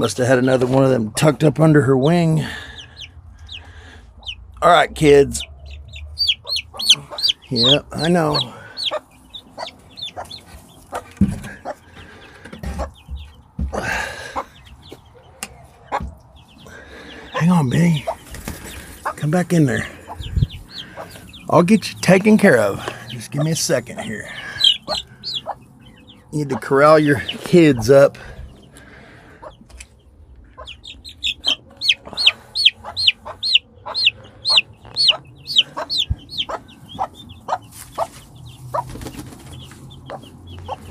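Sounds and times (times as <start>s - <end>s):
baby chicks peeping: 0.0s - 40.9s
hen clucking: 0.0s - 40.9s.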